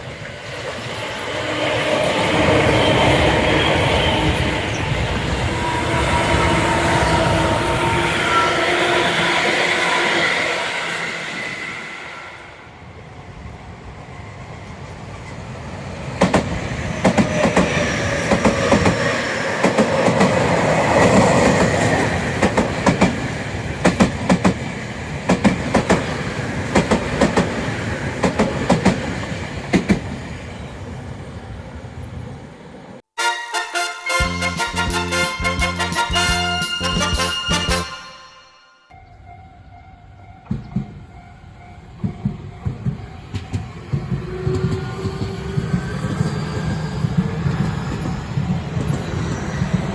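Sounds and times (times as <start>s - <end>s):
electric train rumble: 0.0s - 33.0s, 39.0s - 49.9s
train wheels clacking on rail joints: 16.2s - 30.2s, 41.9s - 49.9s
music: 33.2s - 39.3s.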